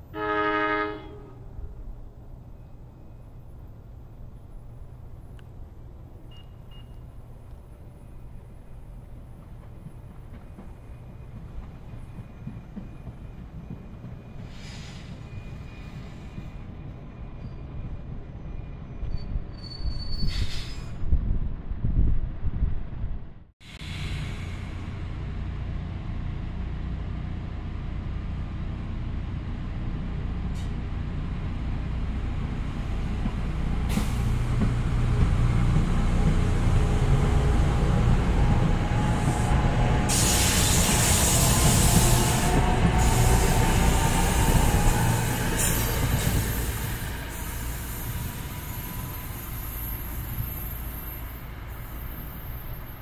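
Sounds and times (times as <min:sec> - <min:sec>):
commuter train rumbling: 0:00.0 - 0:53.0
hissing air burst: 0:40.1 - 0:48.5.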